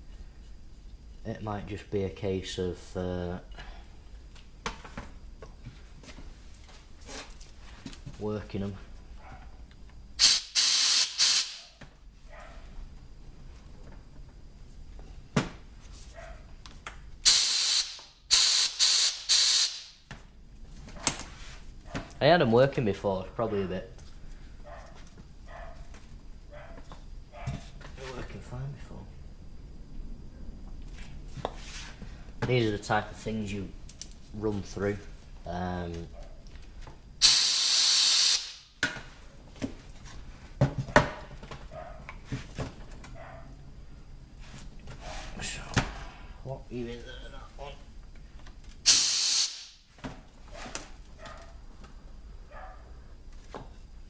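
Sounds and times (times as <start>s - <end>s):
compressed air blow gun hissing: 10.2s - 11.7s, 17.2s - 19.9s, 37.2s - 38.6s, 48.9s - 49.7s.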